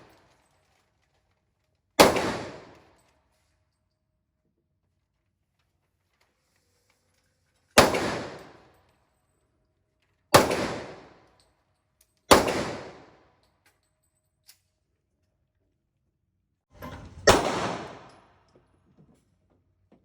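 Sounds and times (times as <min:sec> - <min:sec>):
handgun shots: 0:02.0 - 0:02.7, 0:07.8 - 0:08.5, 0:10.4 - 0:11.1, 0:12.3 - 0:13.0, 0:17.2 - 0:18.2.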